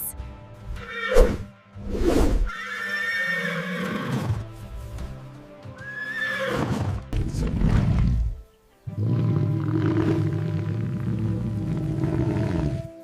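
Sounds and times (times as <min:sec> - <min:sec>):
background music: 0:00.0 - 0:13.0
horse whinnying: 0:00.8 - 0:01.2, 0:02.5 - 0:04.4, 0:05.8 - 0:07.0.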